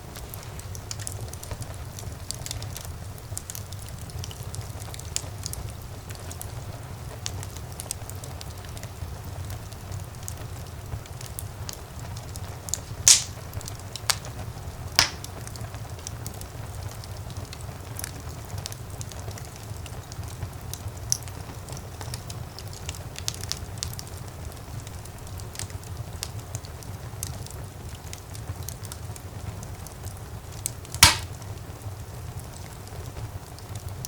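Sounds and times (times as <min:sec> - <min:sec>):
fire crackling in fireplace: 0:00.0 - 0:34.0
sharp pops of fire: 0:12.7 - 0:16.2, 0:30.6 - 0:31.8.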